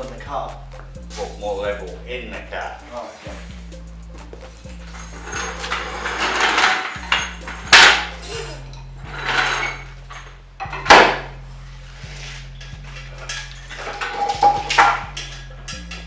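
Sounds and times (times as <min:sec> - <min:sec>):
metal clatters and scrapes: 0:04.4 - 0:16.0.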